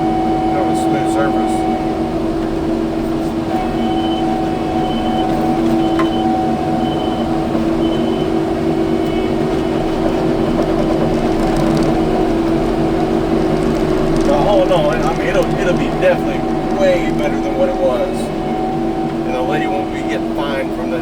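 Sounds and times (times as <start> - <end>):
faint high beep: 0.0 - 2.2, 3.5 - 9.9, 14.3 - 21.0
skid steer engine and hydraulics: 0.0 - 21.0.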